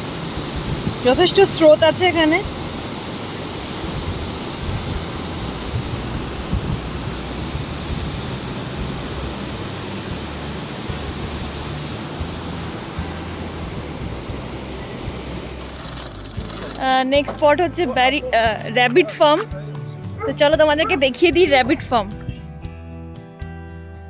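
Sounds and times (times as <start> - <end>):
wind rumble on microphone: 0.0 - 3.0, 3.6 - 15.7
river rushing: 0.0 - 16.8.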